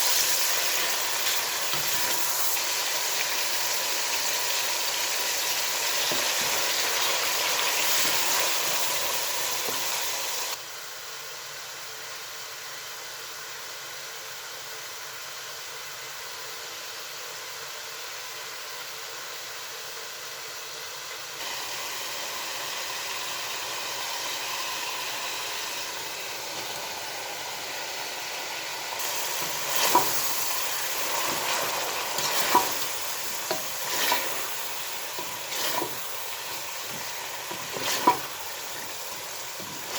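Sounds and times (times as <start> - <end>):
food sizzling in a pan: 0.0 - 10.6, 21.4 - 39.9
stirring scraping and clicking: 29.0 - 39.9.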